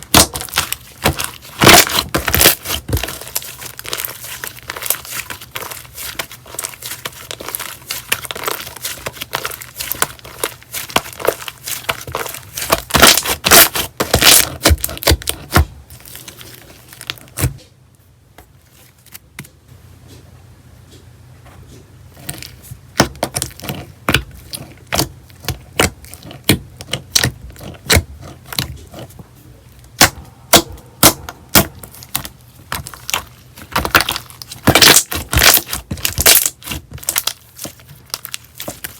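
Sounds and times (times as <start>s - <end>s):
slime squishing with crackling clicks: 0.0s - 15.7s, 29.8s - 38.9s.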